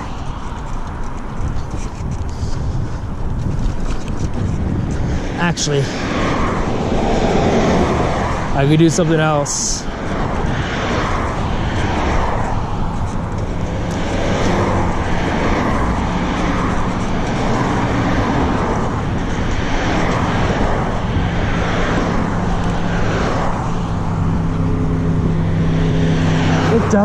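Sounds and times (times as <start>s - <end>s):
cars passing by: 0.0s - 27.0s.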